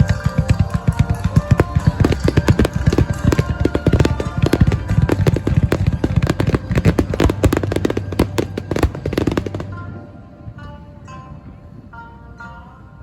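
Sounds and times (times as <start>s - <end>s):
fireworks cracking and banging: 0.0s - 9.8s
music: 0.0s - 13.0s.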